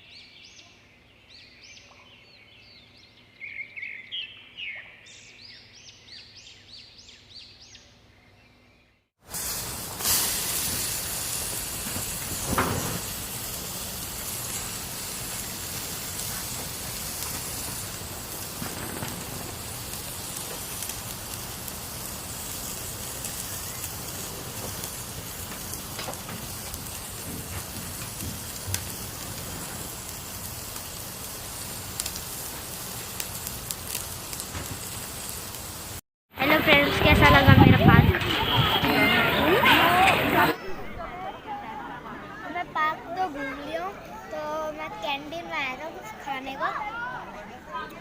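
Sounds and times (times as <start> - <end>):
steady hiss: 9.2 - 40.6.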